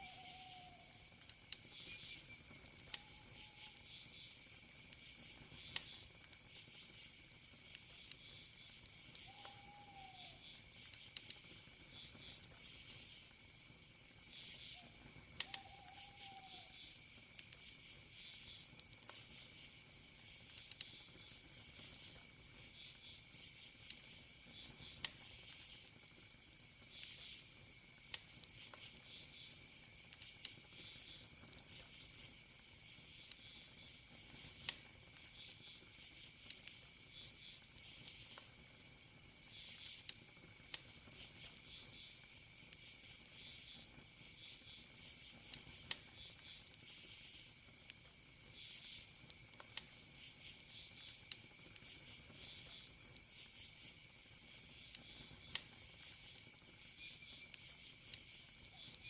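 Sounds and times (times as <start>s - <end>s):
faint whistle-like call: 0.0s - 1.0s, 1.8s - 4.2s, 9.2s - 10.5s, 14.5s - 17.0s, 58.6s - 59.0s
campfire crackling and popping: 0.0s - 59.0s
crickets chirping: 0.0s - 59.0s.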